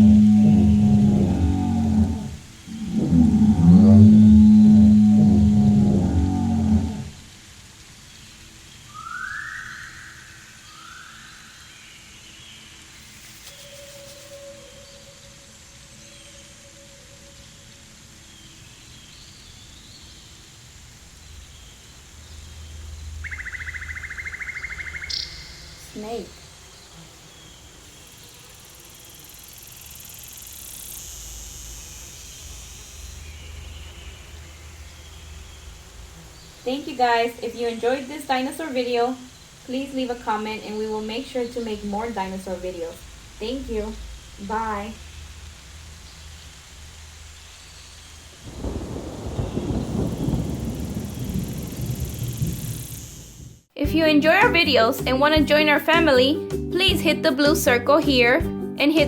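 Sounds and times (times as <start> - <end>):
low rumble: 0.0 - 7.3, 41.6 - 53.7
faint steady hiss: 0.0 - 56.2
short rising whistles: 8.9 - 11.4, 13.0 - 15.6.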